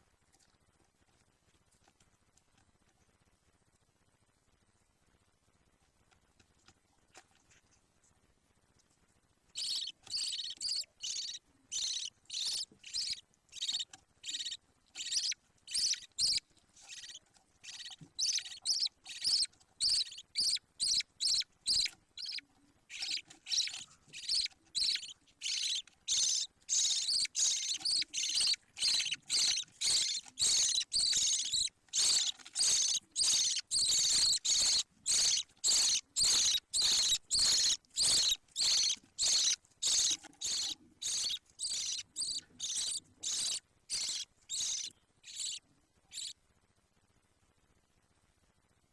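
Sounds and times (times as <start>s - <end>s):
budgerigar chick calling: 9.6s - 46.3s.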